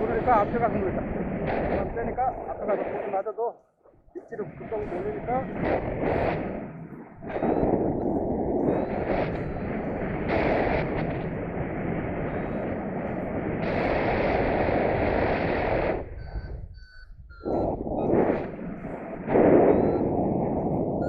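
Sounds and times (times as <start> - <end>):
wind buffeting microphone: 0.0 - 21.0
short high variometer beeps: 7.2 - 8.0, 8.6 - 9.9, 16.0 - 18.9, 19.5 - 20.2.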